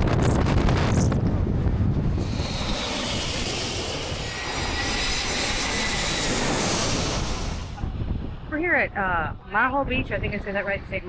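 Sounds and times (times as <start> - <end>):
thin high engine whine: 0.0 - 8.5
jet aircraft passing overhead: 0.0 - 8.6.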